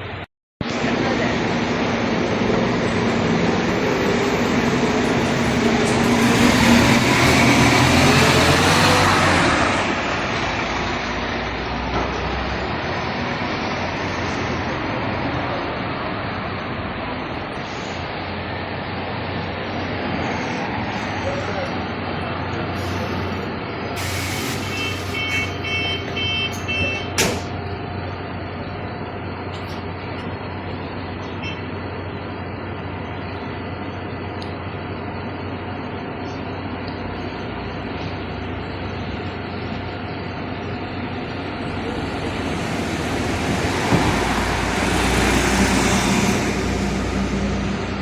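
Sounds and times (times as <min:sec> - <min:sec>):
heavy vehicle passing: 0:00.7 - 0:24.6, 0:37.8 - 0:48.0
brief hiss: 0:24.0 - 0:25.4
reversing alarm beeps: 0:24.6 - 0:27.2.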